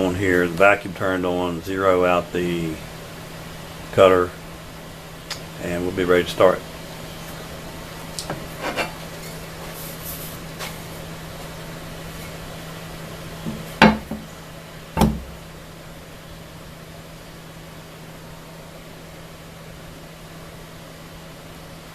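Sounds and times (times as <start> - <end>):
steady low hum: 0.0 - 21.9
solid knocks with low thud: 13.5 - 14.3, 15.0 - 15.4.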